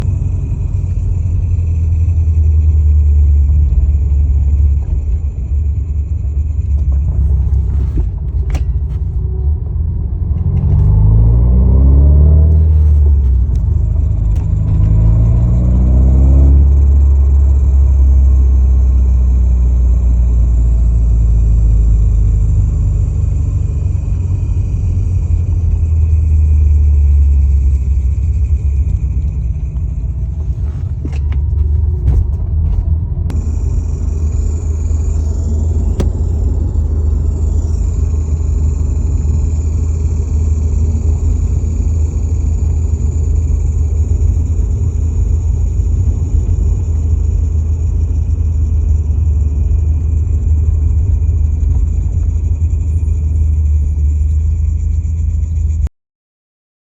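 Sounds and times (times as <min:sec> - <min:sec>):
car engine low rumble: 0:00.0 - 0:55.9
grinding noise: 0:00.0 - 0:55.9
sliding pitched tone: 0:10.3 - 0:32.0, 0:33.2 - 0:55.1.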